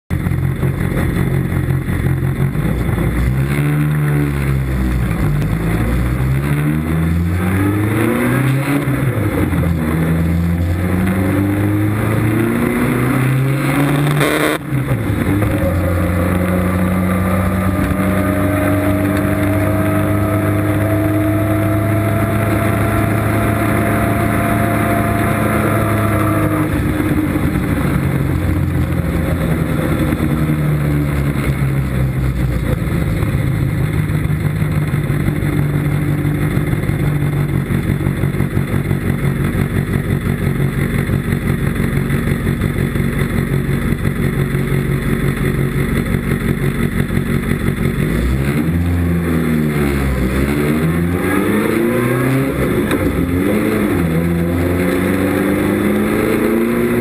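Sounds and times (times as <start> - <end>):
wind and road noise: 0.1 - 40.3
sports car engine revving: 0.1 - 57.0.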